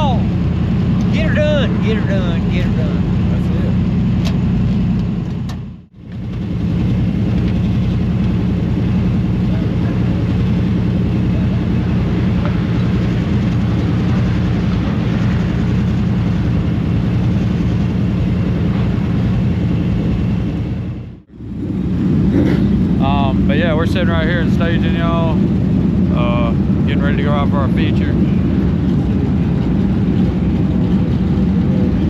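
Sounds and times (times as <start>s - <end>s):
race car engine droning: 0.0s - 32.0s.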